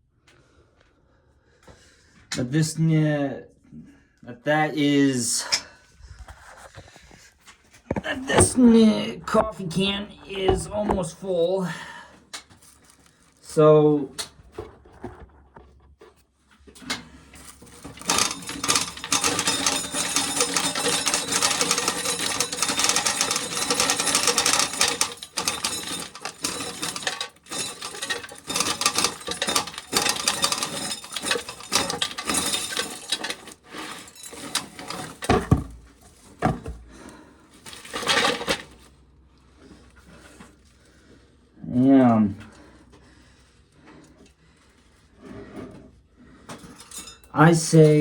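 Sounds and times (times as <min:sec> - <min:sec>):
corn kernels rattling and clicking: 0:17.4 - 0:35.9, 0:37.6 - 0:38.8.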